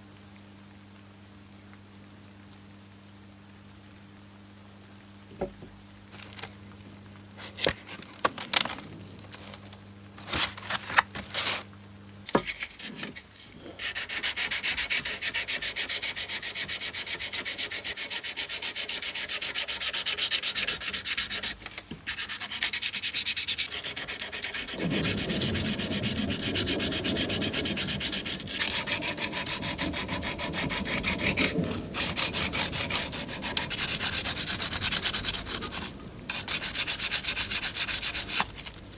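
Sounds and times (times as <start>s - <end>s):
sandpaper rubbing: 12.4s - 38.9s.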